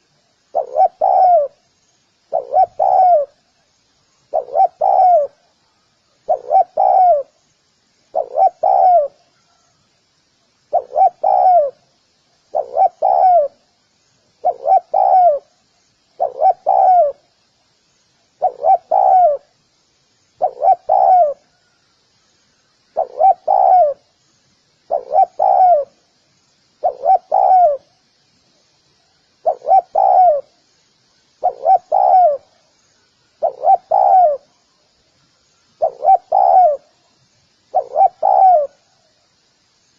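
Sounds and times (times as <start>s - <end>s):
dove cooing: 0.0s - 1.6s, 2.3s - 3.4s, 4.3s - 5.4s, 6.2s - 7.4s, 8.1s - 9.6s, 10.7s - 11.8s, 12.5s - 13.6s, 14.4s - 15.5s, 16.2s - 17.2s, 18.4s - 19.5s, 20.4s - 21.6s, 23.0s - 24.1s, 24.9s - 26.0s, 26.8s - 27.9s, 29.4s - 30.5s, 31.4s - 32.6s, 33.4s - 34.6s, 35.7s - 36.9s, 37.7s - 38.9s.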